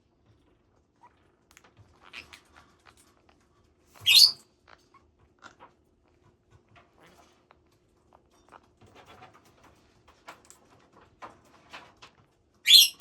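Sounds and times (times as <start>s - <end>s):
parrots calling and chattering: 1.9s - 3.1s, 3.9s - 5.6s, 12.7s - 13.0s
parrot shrill squawk: 4.0s - 4.4s, 12.7s - 13.0s.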